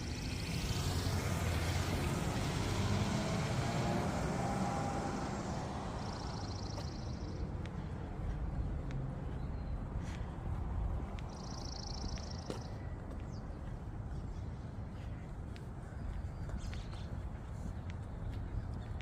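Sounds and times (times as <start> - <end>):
vehicle passing by: 0.0 - 12.7.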